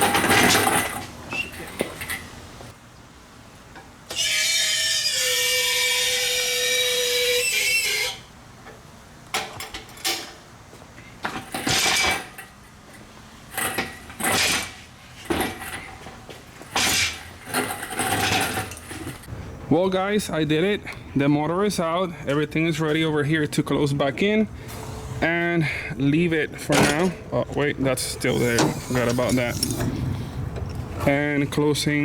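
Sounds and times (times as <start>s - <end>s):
power tool running: 28.2s - 30.0s
short bursts of workshop noise: 28.2s - 30.0s.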